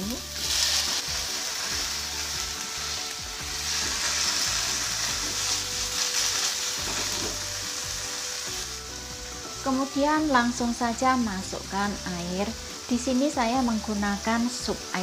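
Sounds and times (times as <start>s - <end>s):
tofu sizzling in hot oil: 0.0s - 15.0s
wooden spatula turning food: 0.4s - 9.2s.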